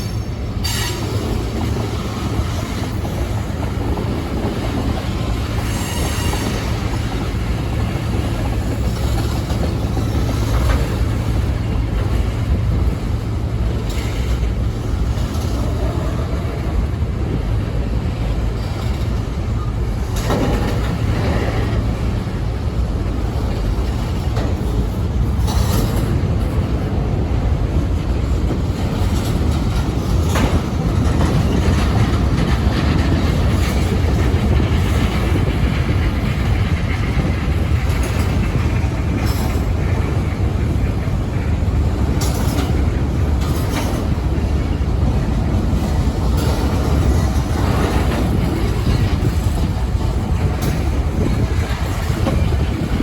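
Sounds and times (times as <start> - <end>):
train wheels rumbling on track: 0.0 - 53.0
wheels clacking on rail joints: 0.0 - 53.0.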